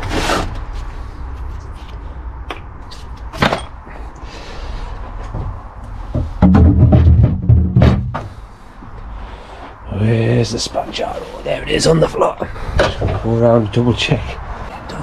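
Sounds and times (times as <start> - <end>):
knocks and clunks: 5.1 - 8.4, 12.7 - 13.6.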